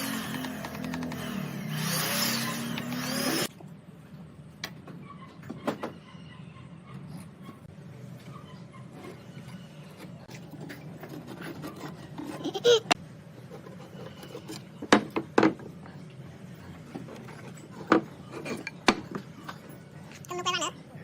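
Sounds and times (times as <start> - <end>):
wood rubbing and scraping: 8.9 - 14.8.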